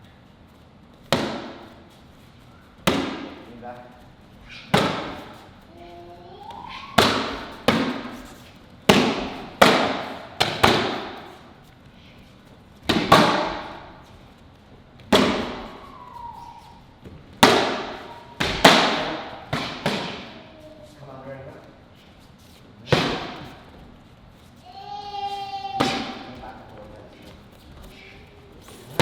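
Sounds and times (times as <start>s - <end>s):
strikes slapping kicking paddles: 1.0s - 1.8s, 2.8s - 3.9s, 4.6s - 5.4s, 6.5s - 11.4s, 12.8s - 14.0s, 15.0s - 15.9s, 17.0s - 20.5s, 25.8s - 27.4s.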